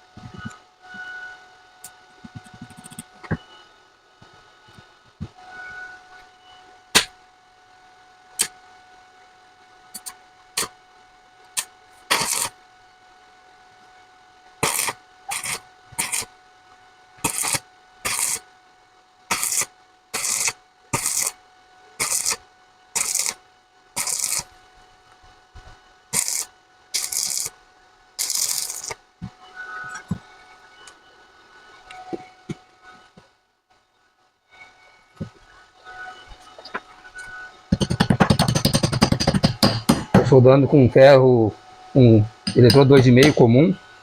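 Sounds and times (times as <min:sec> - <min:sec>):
arc welder crackling: 0:09.9 - 0:10.8, 0:11.5 - 0:12.6, 0:14.6 - 0:16.3, 0:17.2 - 0:18.4, 0:19.3 - 0:21.4, 0:22.0 - 0:24.6, 0:26.1 - 0:29.1, 0:37.7 - 0:40.4.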